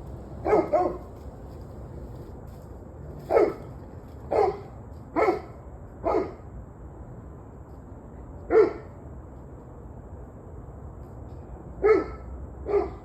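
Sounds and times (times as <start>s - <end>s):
dog barking: 0.3s - 1.2s, 11.8s - 13.0s.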